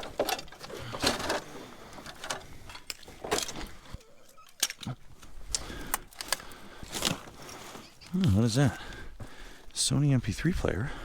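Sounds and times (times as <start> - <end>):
junk clattering and knocking: 0.0 - 3.8.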